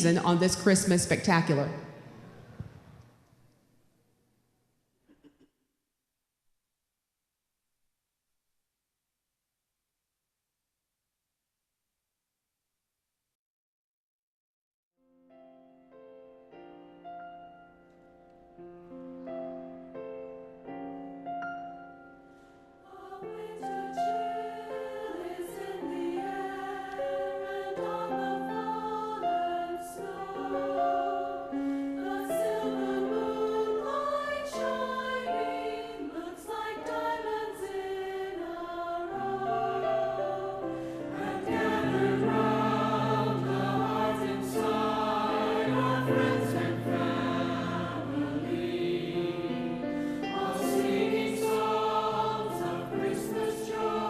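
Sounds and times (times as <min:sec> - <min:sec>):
piano: 0:15.0 - 0:54.0
choir singing: 0:22.8 - 0:54.0.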